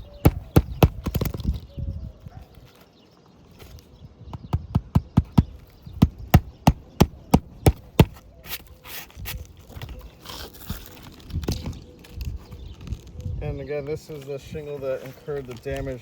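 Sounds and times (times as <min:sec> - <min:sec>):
hammer driving nails: 0:00.0 - 0:01.4, 0:04.4 - 0:08.2
rustling of shingles: 0:00.0 - 0:01.8, 0:02.4 - 0:16.0.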